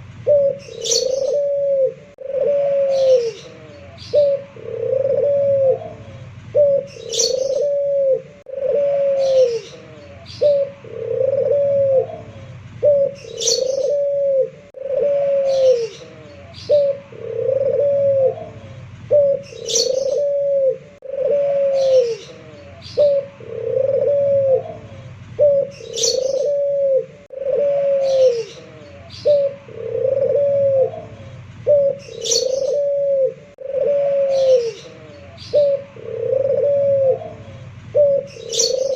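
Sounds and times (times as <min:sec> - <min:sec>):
dove cooing: 0:00.0 - 0:38.9
small bird chirp: 0:00.3 - 0:01.6, 0:02.8 - 0:04.4, 0:06.0 - 0:07.8, 0:09.1 - 0:10.8, 0:12.3 - 0:14.1, 0:15.4 - 0:17.0, 0:18.6 - 0:20.4, 0:21.6 - 0:23.3, 0:24.9 - 0:26.7, 0:27.9 - 0:29.6, 0:31.2 - 0:33.0, 0:34.2 - 0:35.8, 0:37.4 - 0:38.9.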